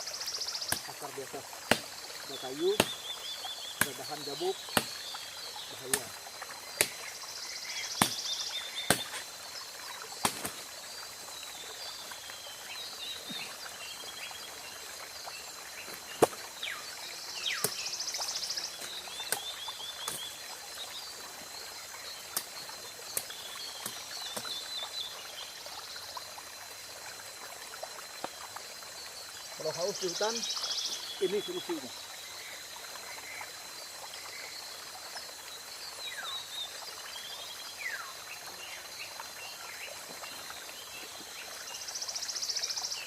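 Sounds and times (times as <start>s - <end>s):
high insect drone: 0.0s - 43.0s
blade chopping vine: 0.7s - 1.0s, 1.6s - 2.0s, 2.6s - 3.0s, 3.8s - 5.0s, 6.8s - 7.1s, 7.9s - 9.3s, 10.2s - 10.6s, 16.1s - 16.4s, 18.8s - 20.3s.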